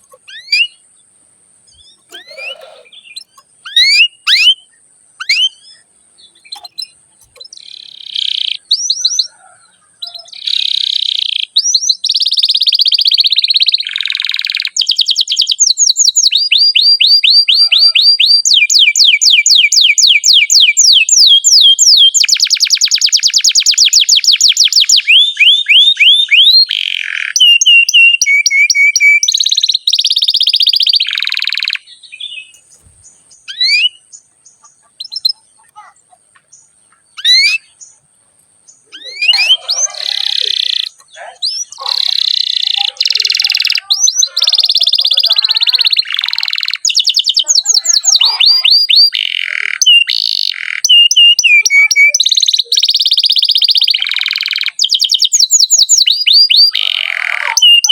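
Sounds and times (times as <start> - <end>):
single bird chirps: 0.0 - 0.8, 1.7 - 19.1, 24.8 - 38.1
canary singing trills: 0.0 - 57.9.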